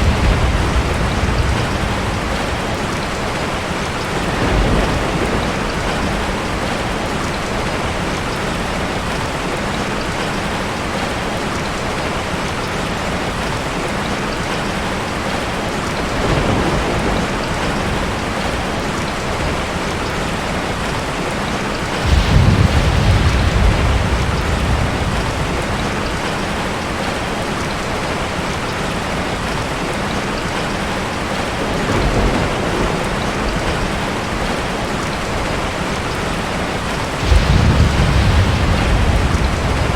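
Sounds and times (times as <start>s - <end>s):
thunder rolling: 0.0s - 8.1s, 16.0s - 19.8s, 21.9s - 28.2s, 31.6s - 39.9s
steady rain hissing: 0.0s - 39.9s.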